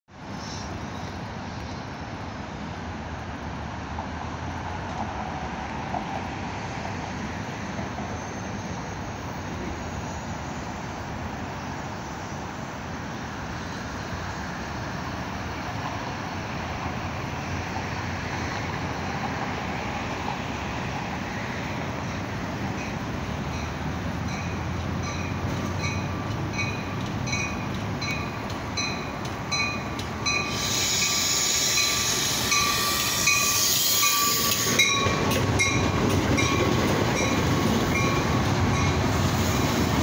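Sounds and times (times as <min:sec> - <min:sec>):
distant road traffic: 0:00.1 - 0:40.0
train rumbling: 0:00.1 - 0:40.0.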